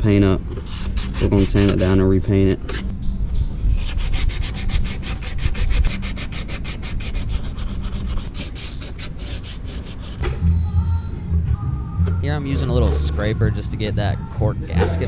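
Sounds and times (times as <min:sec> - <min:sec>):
sandpaper rubbing on metal: 0:00.6 - 0:02.0, 0:03.7 - 0:10.2.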